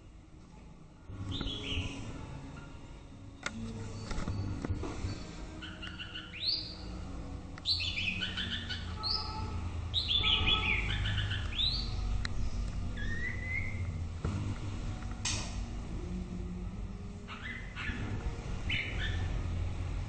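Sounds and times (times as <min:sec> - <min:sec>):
bird singing whistled phrases: 0:01.3 - 0:02.0, 0:07.6 - 0:12.0, 0:12.9 - 0:14.0.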